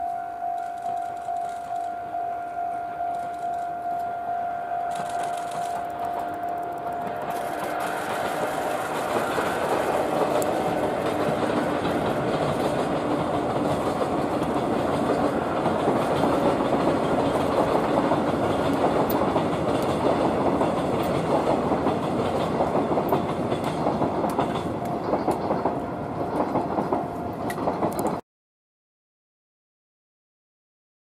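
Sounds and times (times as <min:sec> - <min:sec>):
train wheel noise on rails: 0:00.0 - 0:28.2
wheels clicking over rail joints: 0:04.9 - 0:28.2.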